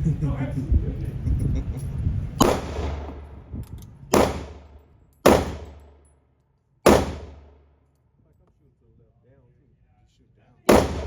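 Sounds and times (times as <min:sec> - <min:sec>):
pistol shots with echo: 0:02.4 - 0:03.5, 0:04.1 - 0:06.0, 0:06.8 - 0:07.6, 0:10.7 - 0:11.0.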